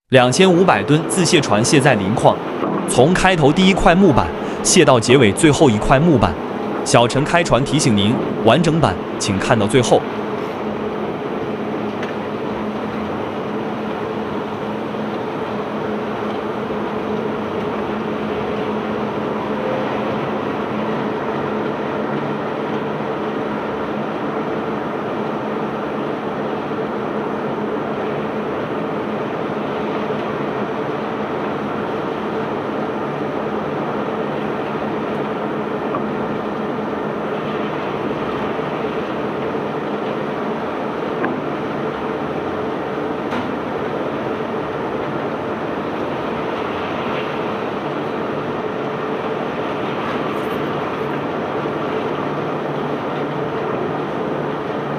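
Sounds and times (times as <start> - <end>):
unloading machinery rumbling: 2.4 - 4.6.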